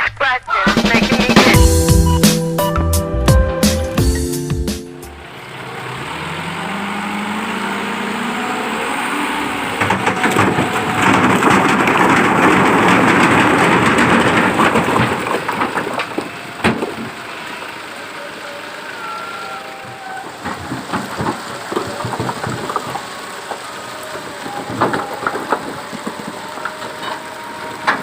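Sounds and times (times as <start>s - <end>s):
truck engine revving: 0.7s - 28.0s
stones sliding out rattling: 9.6s - 17.3s, 20.2s - 28.0s.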